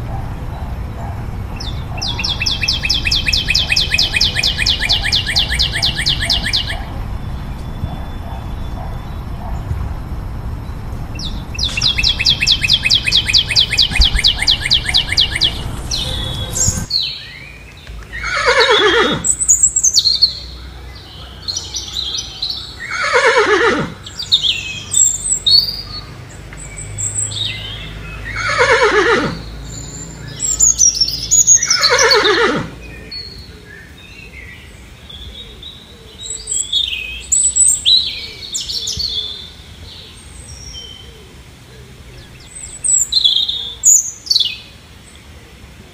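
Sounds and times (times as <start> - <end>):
small bird chirps: 1.6 - 9.4, 11.2 - 18.3
horse whinnying: 18.2 - 19.3, 22.9 - 24.0, 28.4 - 29.4, 31.6 - 32.8.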